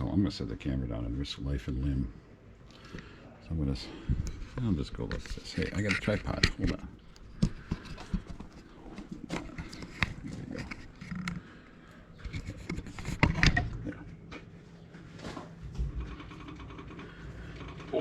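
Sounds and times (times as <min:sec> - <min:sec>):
camera handling clicks and rubbing: 0:04.5 - 0:11.4, 0:12.2 - 0:13.5.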